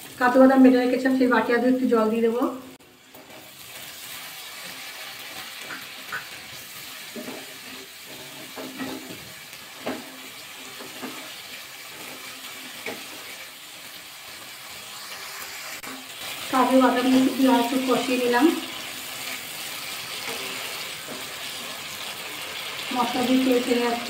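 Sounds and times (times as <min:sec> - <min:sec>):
paste sizzling in oil: 0:02.8 - 0:24.0
wooden spatula scraping a pan: 0:06.8 - 0:13.5.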